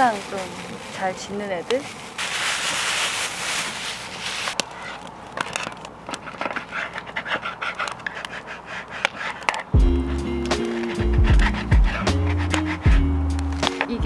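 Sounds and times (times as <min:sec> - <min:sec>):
dogs barking: 0:06.7 - 0:13.2.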